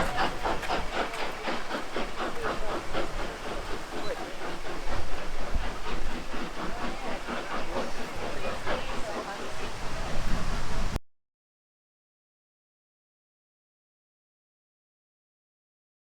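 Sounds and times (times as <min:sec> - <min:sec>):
steam hissing: 0:00.0 - 0:11.0
steam locomotive chuffing: 0:00.0 - 0:11.0.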